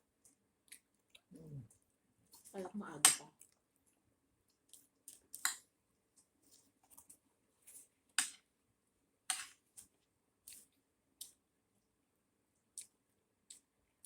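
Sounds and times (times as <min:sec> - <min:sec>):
chewing clicks and crunches: 0:12.7 - 0:13.7.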